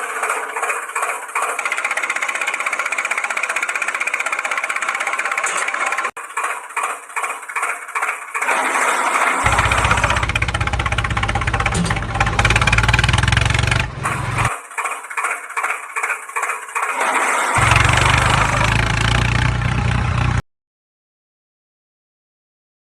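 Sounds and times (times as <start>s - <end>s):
engine cranking and starting: 0.0s - 20.4s.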